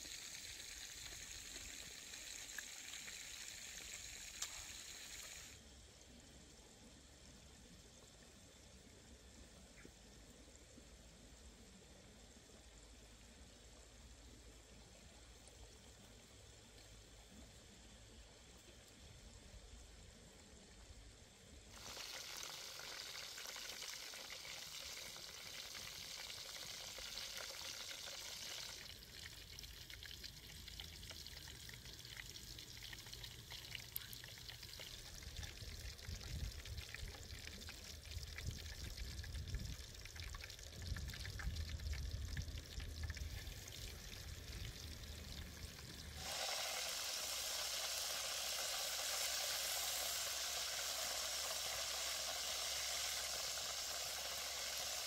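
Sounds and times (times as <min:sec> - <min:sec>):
food sizzling: 0:00.0 - 0:05.6, 0:21.8 - 0:29.0, 0:45.1 - 0:55.0.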